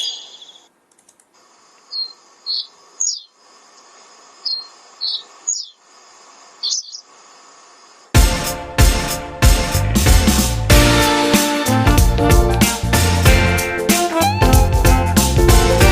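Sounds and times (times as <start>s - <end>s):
bird calling high notes: 0.0s - 0.7s, 1.9s - 3.3s.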